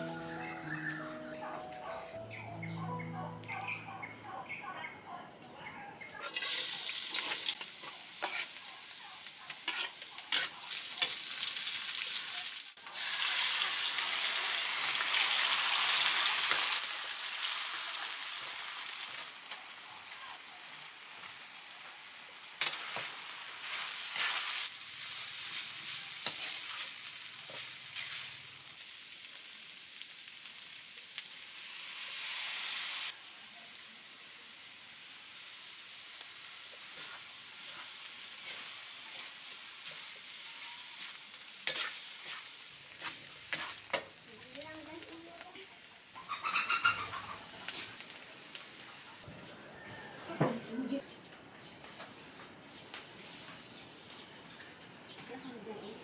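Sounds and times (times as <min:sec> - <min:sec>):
vegetables sizzling in oil: 0:06.0 - 0:51.0, 0:52.5 - 0:56.0
spatula scraping a wok: 0:06.2 - 0:12.2, 0:22.6 - 0:28.6, 0:36.6 - 0:44.2.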